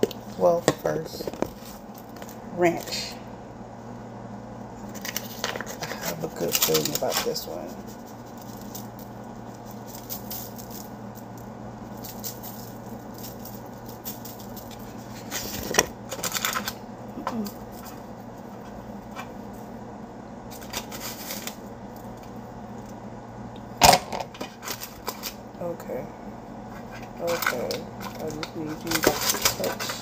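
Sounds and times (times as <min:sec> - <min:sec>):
seasoning shaker rattling: 0:04.9 - 0:16.8, 0:26.8 - 0:30.0.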